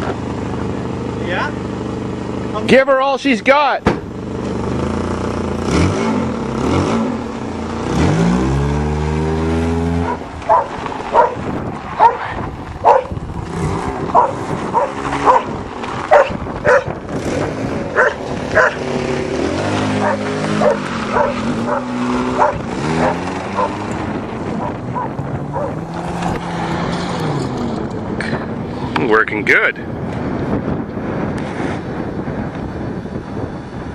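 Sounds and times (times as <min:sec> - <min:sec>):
car engine revving: 0:04.0 - 0:33.9
dog barking: 0:10.0 - 0:11.4, 0:12.0 - 0:13.1, 0:14.1 - 0:15.5, 0:16.1 - 0:17.0, 0:18.0 - 0:18.8, 0:20.0 - 0:23.8, 0:24.6 - 0:25.8.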